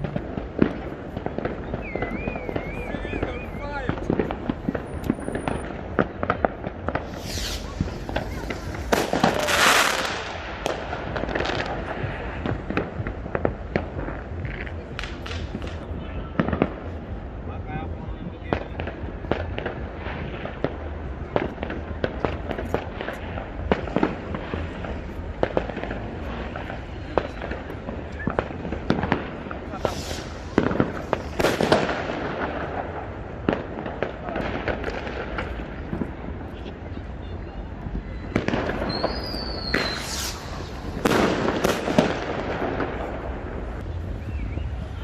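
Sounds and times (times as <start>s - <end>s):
fireworks cracks and bangs: 0.0s - 45.0s
low rumble of distant bursts: 0.0s - 45.0s
high firework whistle: 1.4s - 4.0s, 7.0s - 10.2s, 29.7s - 31.9s, 38.1s - 42.0s.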